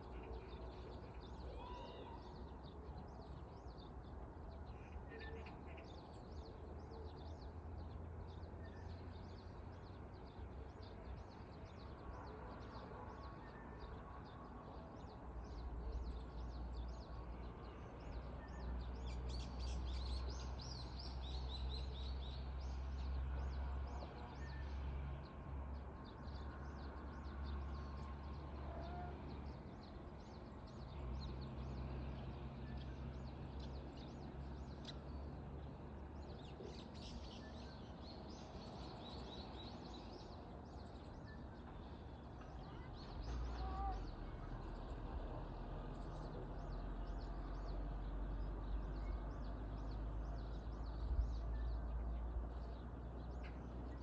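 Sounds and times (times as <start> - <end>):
small birds chirping: 25.8 - 54.0.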